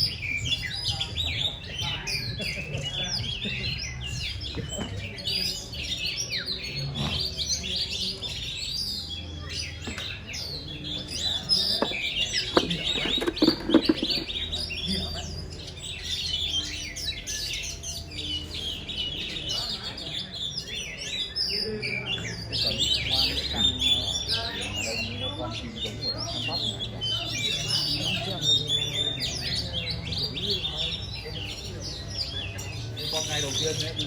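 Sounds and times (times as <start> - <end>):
birds singing: 0.0 - 34.0.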